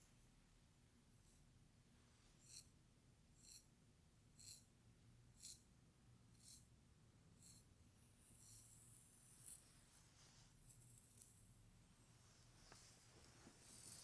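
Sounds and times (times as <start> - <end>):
brush strokes through hair: 8.4 - 11.4, 12.1 - 14.0.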